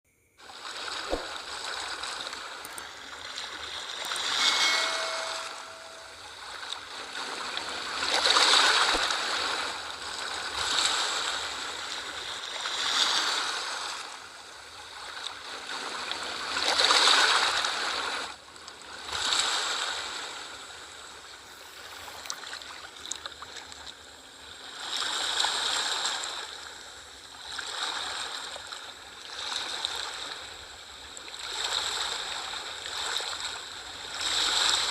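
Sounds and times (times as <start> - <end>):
sea waves washing in: 0.4 - 14.2.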